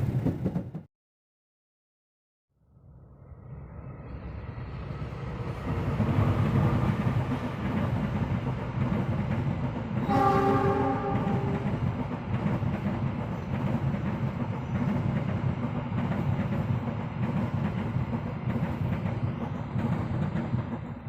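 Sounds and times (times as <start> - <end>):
train rumbling on rails: 0.0 - 0.9, 2.8 - 21.0
train horn blast: 10.0 - 11.9.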